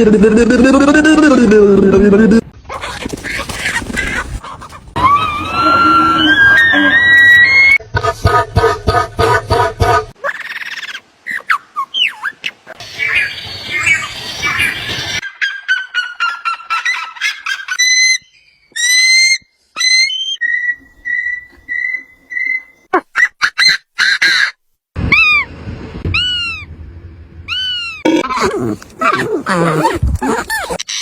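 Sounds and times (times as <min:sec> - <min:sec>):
bird calls with falling notes: 0:10.2 - 0:22.9.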